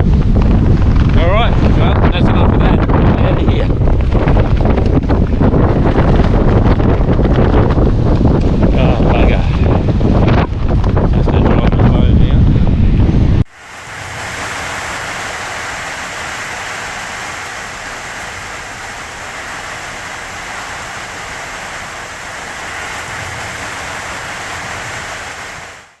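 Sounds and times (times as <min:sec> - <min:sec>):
heavy rain falling: 0:13.5 - 0:26.0.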